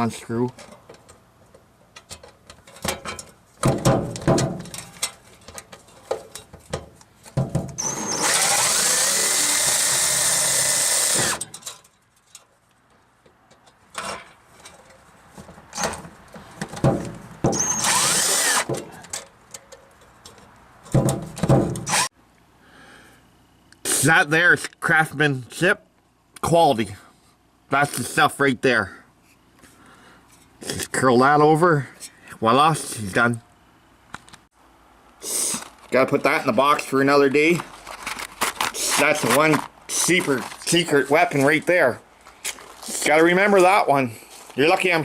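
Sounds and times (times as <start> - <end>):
tools and metal rattling: 0.5 - 8.0, 11.2 - 22.1
power drill driving a screw: 7.8 - 11.5, 17.5 - 18.7, 21.8 - 22.1.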